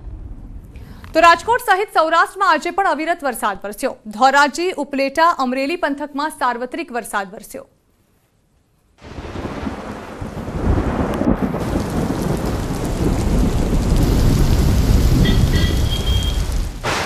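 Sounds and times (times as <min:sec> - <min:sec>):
deep rumble: 0:00.0 - 0:01.2
heavy rain pouring: 0:09.0 - 0:17.0.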